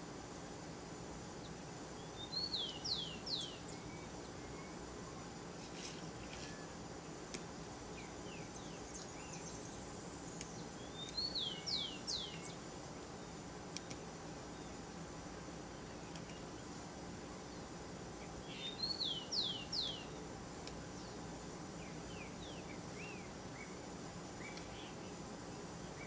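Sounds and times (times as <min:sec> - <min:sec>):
steady outdoor hum: 0:00.0 - 0:26.0.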